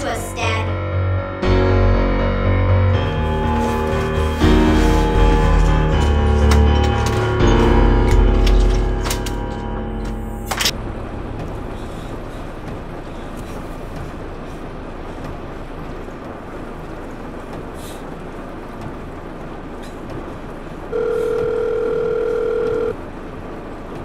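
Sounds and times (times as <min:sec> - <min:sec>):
low background noise: 0:06.8 - 0:24.0
telephone ringback tone: 0:20.9 - 0:23.0.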